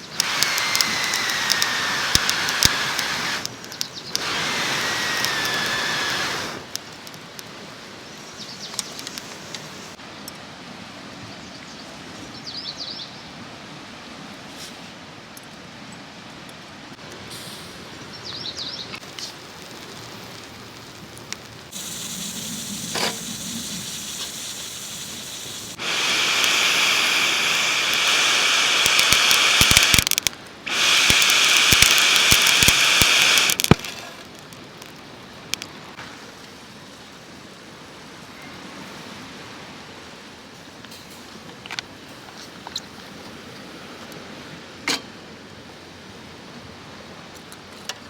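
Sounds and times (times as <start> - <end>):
barbecue grill sizzling and crackling: 0.0 - 10.0, 19.0 - 38.0.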